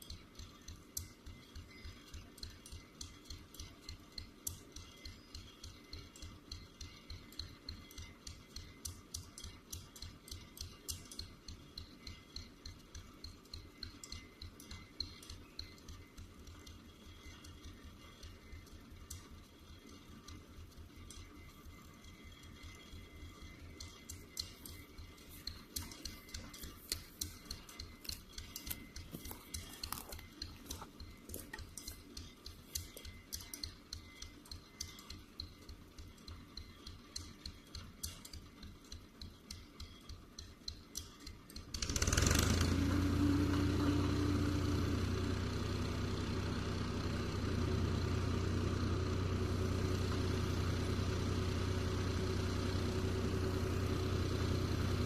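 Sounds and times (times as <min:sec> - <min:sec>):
quiet even ticking: 0:00.0 - 0:42.2
tractor engine humming: 0:00.0 - 0:55.0.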